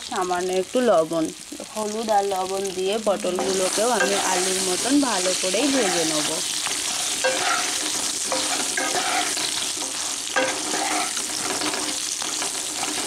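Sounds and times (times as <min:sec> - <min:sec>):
vegetables sizzling in oil: 0:00.0 - 0:13.0
wooden spatula scraping pan: 0:03.4 - 0:13.0.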